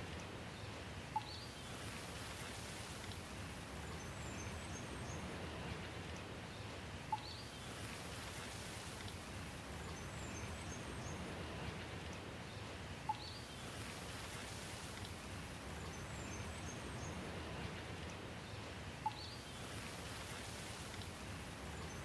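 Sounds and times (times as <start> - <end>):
steady rain falling: 0.0 - 22.0
sharp drip tick: 1.1 - 1.5, 7.1 - 8.0
faint bird chirps: 1.1 - 1.8, 7.1 - 7.7, 13.1 - 13.9, 19.0 - 20.5.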